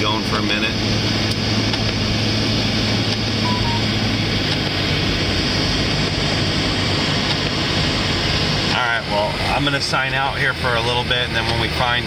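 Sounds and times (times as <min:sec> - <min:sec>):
vehicle engine hum: 0:00.0 - 0:12.0
double beep: 0:03.4 - 0:03.9.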